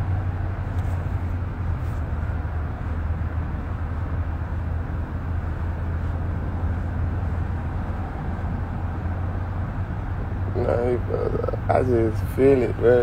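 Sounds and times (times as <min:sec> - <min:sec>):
car engine drone: 0:00.0 - 0:13.0.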